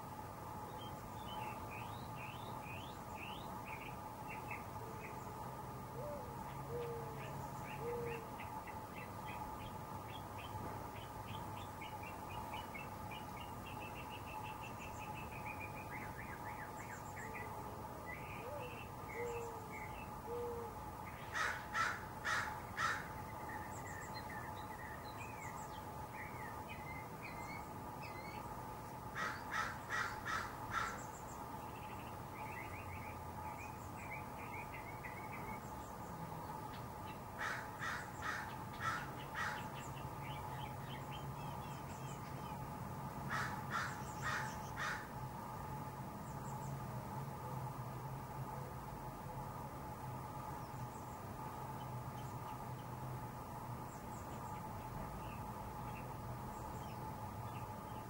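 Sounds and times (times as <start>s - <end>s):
faint steady hum: 0.0s - 58.0s
bird harsh calls: 21.2s - 23.7s, 29.2s - 31.3s, 37.4s - 39.9s, 43.3s - 45.1s.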